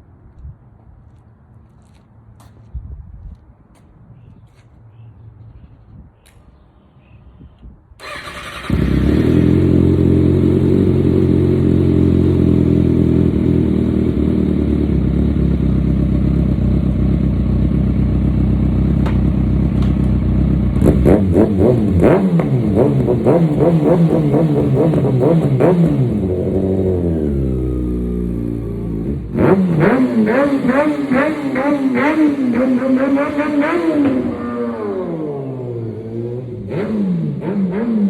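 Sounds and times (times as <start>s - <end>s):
motorcycle engine starting and idling: 8.0s - 38.0s
engine revving in quick blips: 20.7s - 38.0s.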